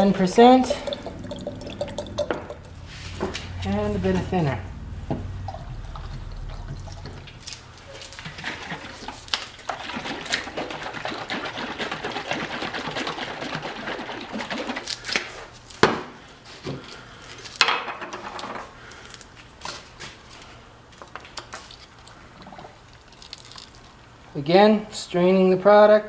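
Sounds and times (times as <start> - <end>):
paint stirring rattly scraping: 0.0 - 4.7, 5.4 - 15.1.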